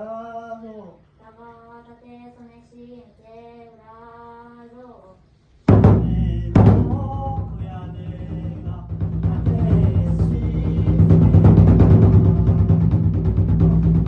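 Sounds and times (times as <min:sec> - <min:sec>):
large drum strikes: 0:05.7 - 0:14.0.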